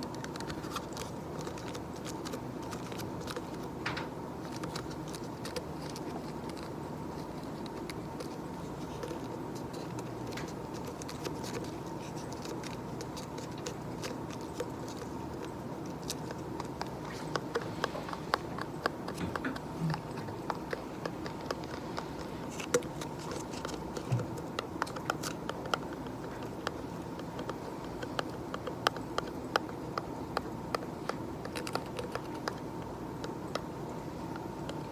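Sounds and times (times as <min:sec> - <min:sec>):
steady background hiss: 0:00.0 - 0:34.9.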